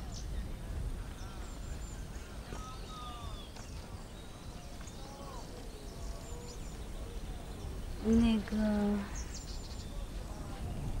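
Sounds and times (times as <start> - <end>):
whistled bird calls: 0.0 - 8.1.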